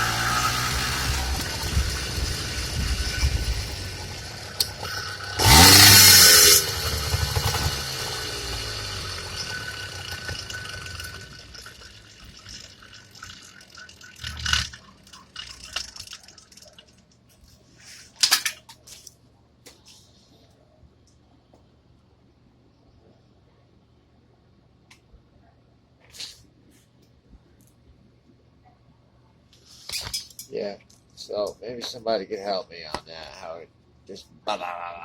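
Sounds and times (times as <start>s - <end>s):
two-stroke engine running: 0.0s - 16.7s.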